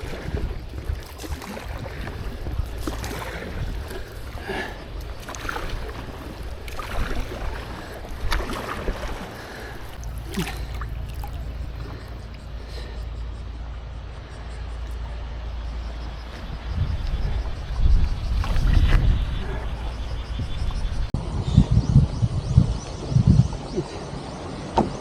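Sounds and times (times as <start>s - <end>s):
knocks and splashes: 0.0s - 13.1s, 18.0s - 19.6s
water lapping against boat: 0.0s - 21.1s
wind buffeting microphone: 0.0s - 25.0s.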